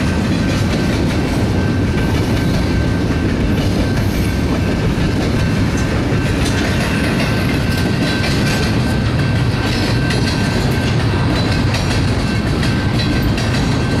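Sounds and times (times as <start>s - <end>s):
rail joint clicks: 0.0s - 14.0s
train wheels rumbling on rails: 0.0s - 14.0s.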